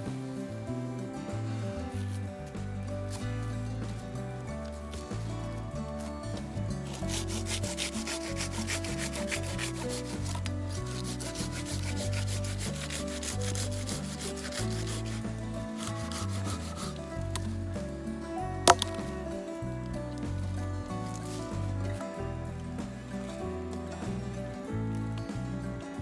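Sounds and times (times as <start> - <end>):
hand saw cutting wood: 6.8 - 17.6, 18.7 - 19.2.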